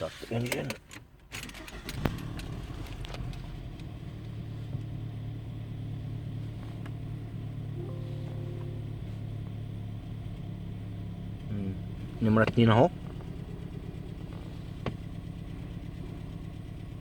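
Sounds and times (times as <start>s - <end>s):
car engine starting and idling: 0.0s - 17.0s.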